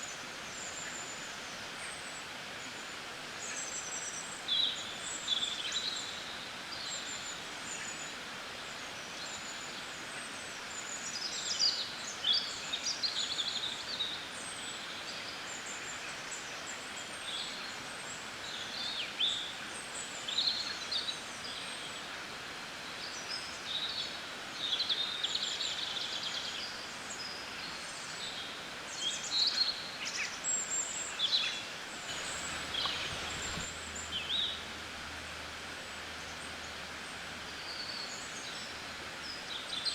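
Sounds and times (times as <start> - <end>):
outdoor background hiss: 0.0 - 39.9
songbirds chirping and singing: 32.0 - 33.6.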